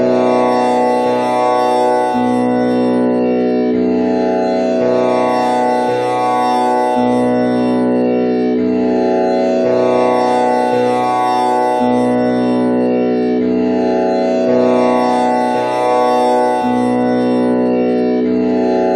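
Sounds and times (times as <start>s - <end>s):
tanpura drone: 0.0s - 18.9s.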